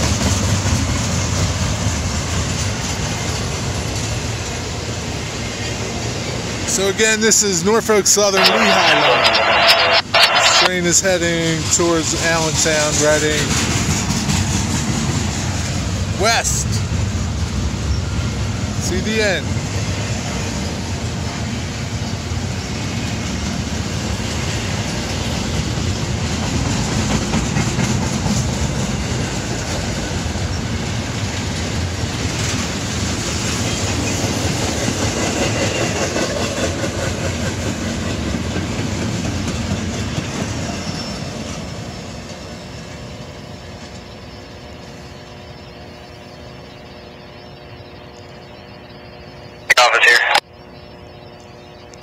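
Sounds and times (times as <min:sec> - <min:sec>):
freight train wheels clattering: 0:00.0 - 0:05.1, 0:12.4 - 0:16.0.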